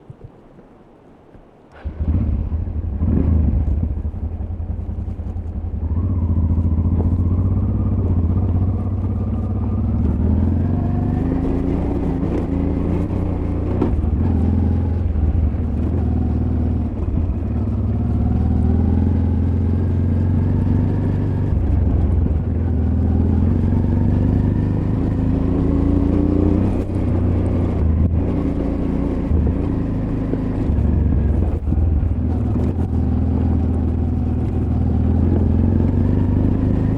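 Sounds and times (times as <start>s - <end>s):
motorcycle engine revving: 1.7s - 36.9s.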